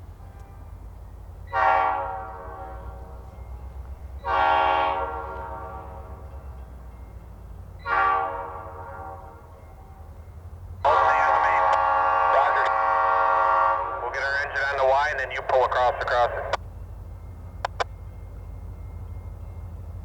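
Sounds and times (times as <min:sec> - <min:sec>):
locomotive air horn blasts: 0:01.5 - 0:03.3, 0:04.2 - 0:06.2, 0:07.8 - 0:09.5, 0:10.9 - 0:14.2.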